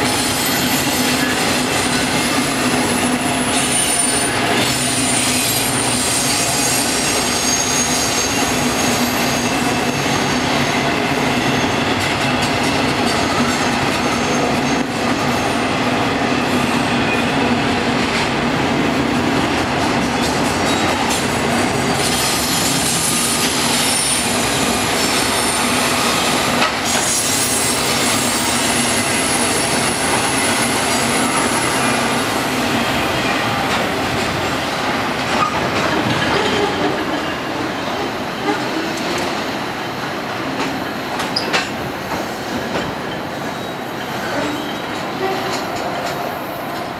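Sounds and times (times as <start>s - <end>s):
freight train wheels rumbling: 0.0s - 46.9s
wheels clacking over rail joints: 33.5s - 39.4s.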